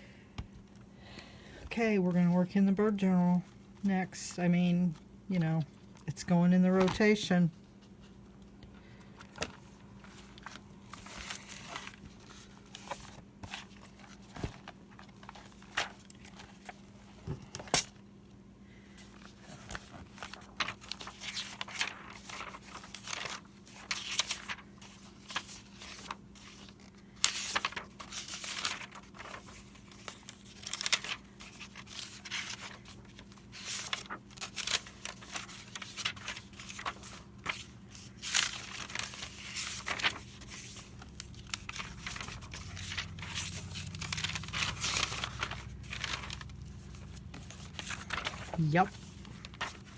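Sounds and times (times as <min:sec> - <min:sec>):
paper rustling and tearing: 0:09.4 - 0:17.9, 0:19.1 - 0:49.9.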